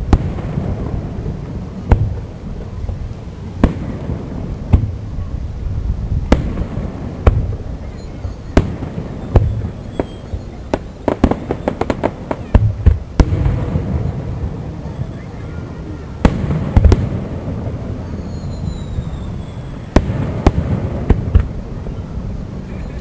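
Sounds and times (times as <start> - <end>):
crackling firework reports: 0.0 - 23.0
firework shells bursting: 6.2 - 14.8, 16.2 - 22.0.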